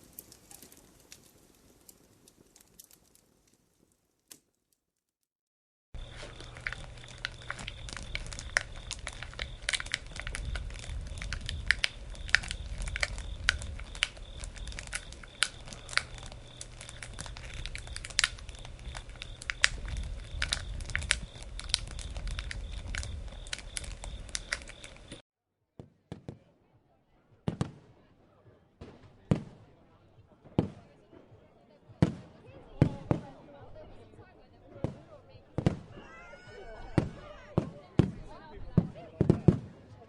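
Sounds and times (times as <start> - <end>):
low rumble of flames: 0.0 - 4.2, 6.0 - 25.2
campfire crackling and popping: 0.0 - 4.8, 6.0 - 25.2.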